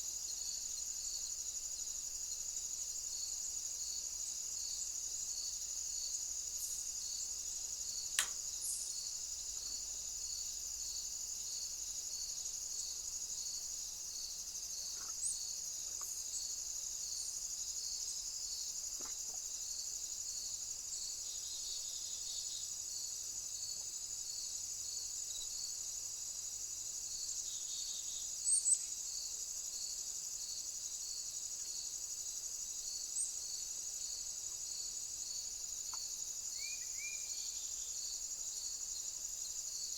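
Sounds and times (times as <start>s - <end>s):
crickets trilling: 0.1s - 39.9s
sharp click: 8.1s - 8.4s.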